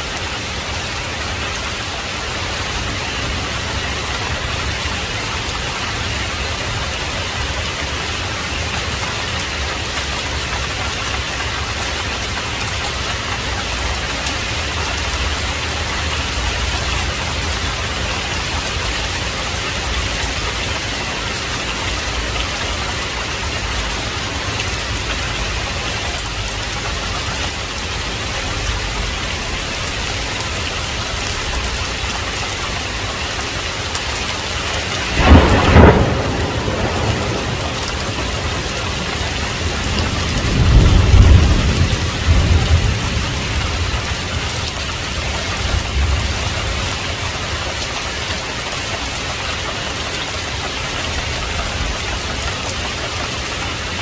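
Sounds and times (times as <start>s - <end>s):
heavy rain: 0.0s - 54.0s
thunder clap: 34.6s - 47.2s.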